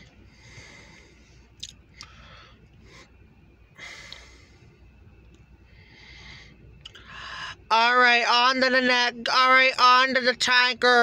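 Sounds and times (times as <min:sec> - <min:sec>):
soft breathing: 0:00.0 - 0:04.9, 0:05.6 - 0:07.7.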